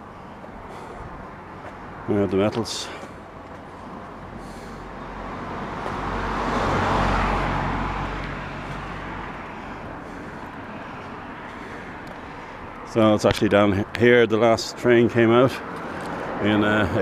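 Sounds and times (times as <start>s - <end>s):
vehicle passing by: 0.4s - 13.0s, 15.2s - 17.0s.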